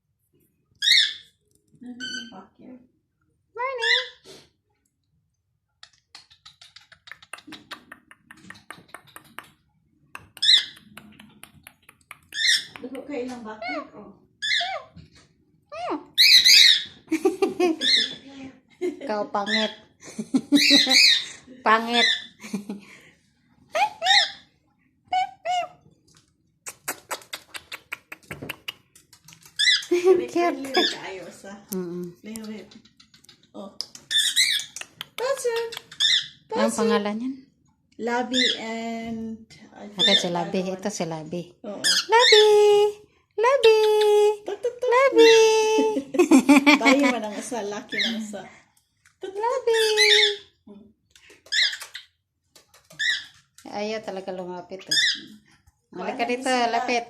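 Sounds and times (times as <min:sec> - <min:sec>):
parrots chirping: 0:00.7 - 0:02.5, 0:03.6 - 0:04.2, 0:05.8 - 0:09.4, 0:10.2 - 0:15.0, 0:15.7 - 0:18.3, 0:19.4 - 0:22.4, 0:23.7 - 0:25.8, 0:26.7 - 0:31.4, 0:32.4 - 0:37.0, 0:38.2 - 0:38.8, 0:39.8 - 0:40.5, 0:41.8 - 0:42.5, 0:47.8 - 0:48.4, 0:49.6 - 0:50.7, 0:51.4 - 0:53.6, 0:54.8 - 0:55.5.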